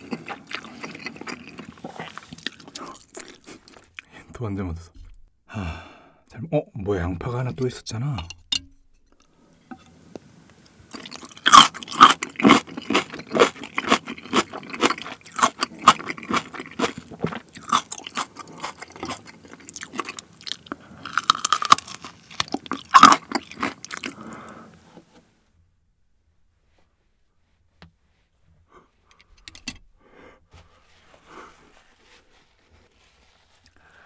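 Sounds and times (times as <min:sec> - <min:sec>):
crunchy wet chewing: 0:00.0 - 0:04.1, 0:10.9 - 0:24.5.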